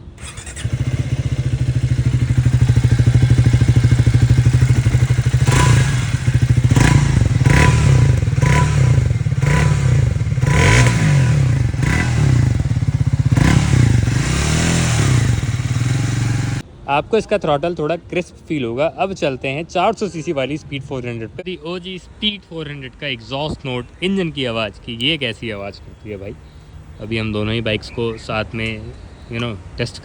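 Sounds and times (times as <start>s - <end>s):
motorcycle engine idling and revving: 0.1s - 16.6s.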